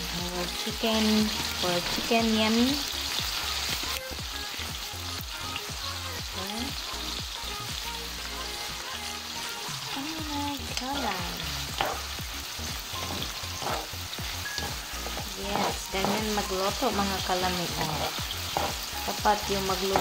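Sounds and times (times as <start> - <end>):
chicken sizzling in hot oil: 0.0 - 20.0
wooden spatula scraping pan: 13.0 - 13.9, 14.6 - 16.9, 17.6 - 20.0.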